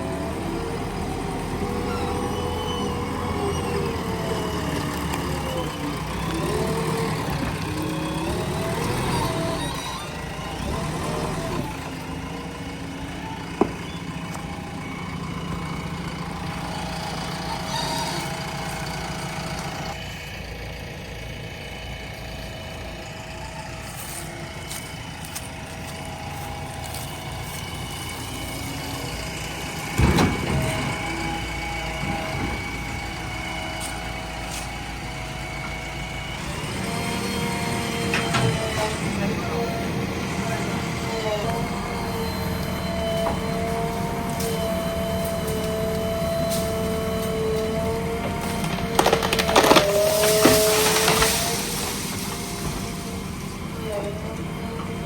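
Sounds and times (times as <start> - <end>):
diesel engine working under load: 0.0 - 55.0.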